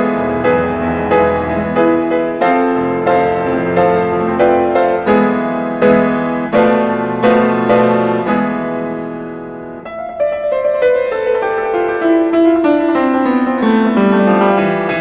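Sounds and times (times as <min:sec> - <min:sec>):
piano playing: 0:00.0 - 0:15.0.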